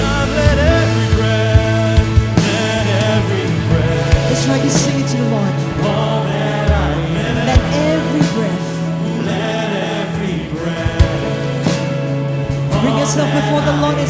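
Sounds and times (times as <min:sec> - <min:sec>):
drum hits: 0:00.0 - 0:09.0
voices singing: 0:00.0 - 0:14.0
worship band music: 0:00.0 - 0:14.0.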